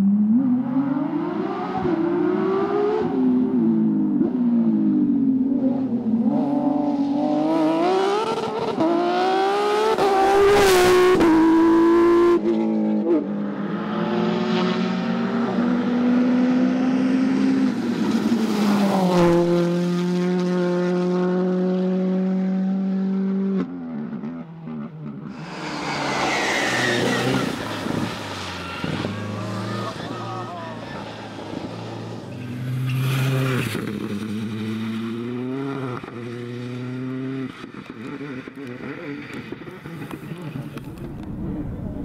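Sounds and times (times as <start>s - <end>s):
rally car engines accelerating: 0.0s - 42.0s
loud rushing hiss: 25.3s - 29.2s.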